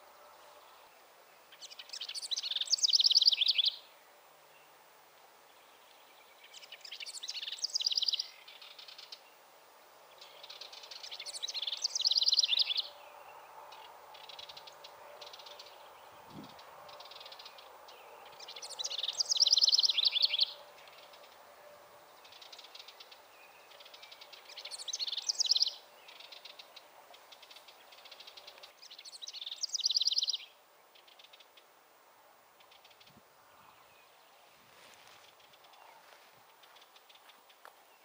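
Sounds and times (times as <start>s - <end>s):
faint bird chirps: 0.0s - 4.8s, 10.1s - 31.8s, 32.6s - 38.0s
songbird trilled song: 1.5s - 3.9s, 5.5s - 9.4s, 10.1s - 13.0s, 13.7s - 21.4s, 22.2s - 31.7s.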